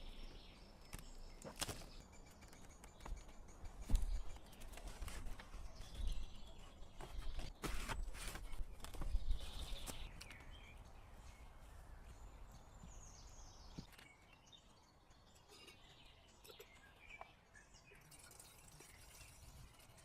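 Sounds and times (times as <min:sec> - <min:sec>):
bird chirps: 0:09.0 - 0:20.0.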